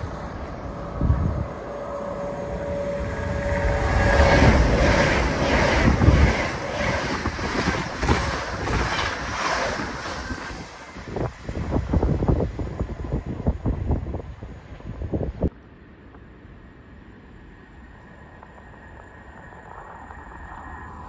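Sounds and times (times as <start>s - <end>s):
wind buffeting microphone: 0.0s - 15.5s
high-speed train passing: 0.0s - 21.0s
wheels clattering on rails: 2.2s - 12.2s.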